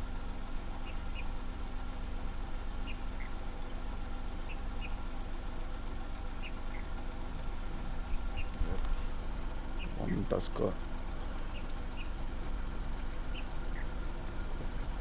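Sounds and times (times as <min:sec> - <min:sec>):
car engine idling: 0:00.0 - 0:15.0
small animal chirping: 0:08.1 - 0:08.6.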